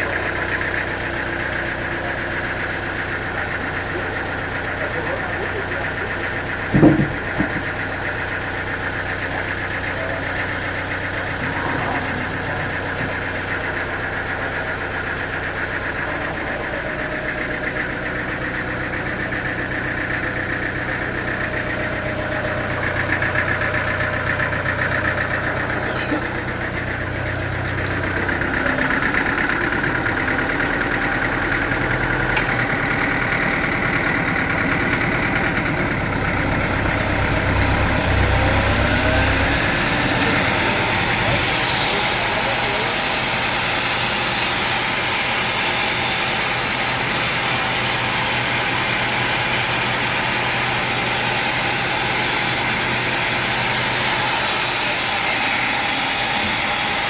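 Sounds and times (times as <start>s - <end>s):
sawmill machinery drone: 0.0s - 57.0s
sharp knock: 6.8s - 7.6s.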